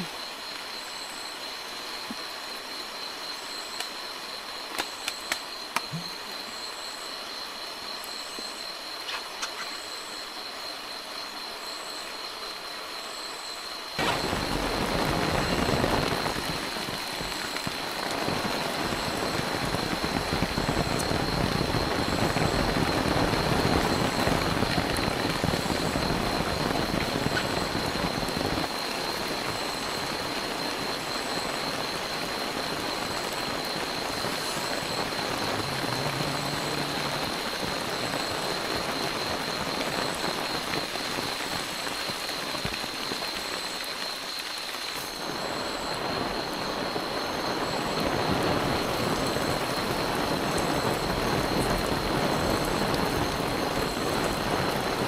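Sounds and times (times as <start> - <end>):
heavy rain downpour: 0.0 - 55.0
thin high whine: 13.1 - 41.5.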